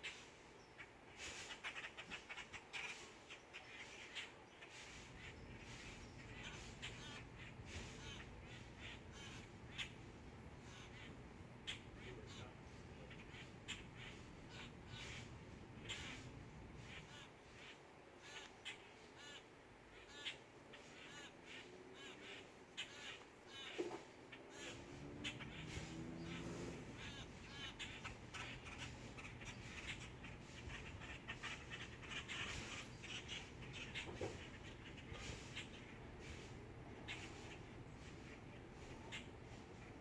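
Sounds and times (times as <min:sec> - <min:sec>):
faint harsh bird calls: 0:00.0 - 0:40.0.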